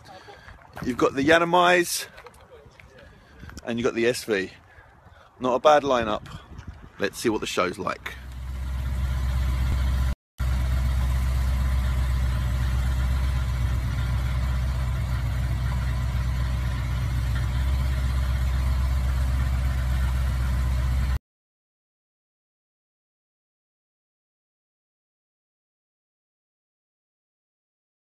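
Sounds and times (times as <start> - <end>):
car engine idling: 8.0 - 21.2.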